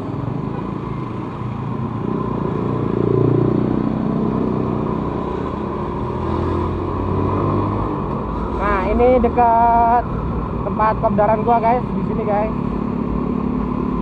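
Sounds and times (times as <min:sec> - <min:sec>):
wind and road rumble: 0:00.0 - 0:14.0
motorcycle engine revving: 0:02.1 - 0:08.9.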